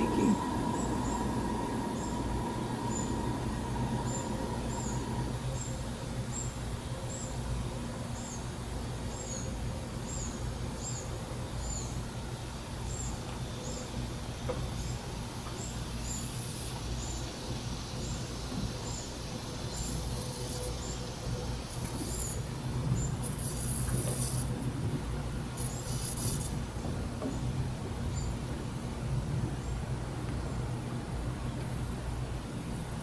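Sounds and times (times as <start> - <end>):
low outdoor rumble: 0.0 - 7.9.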